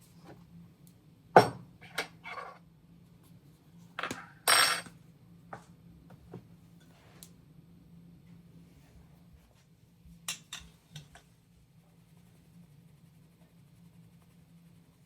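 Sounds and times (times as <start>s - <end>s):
kitchenware clinking: 4.0s - 4.9s.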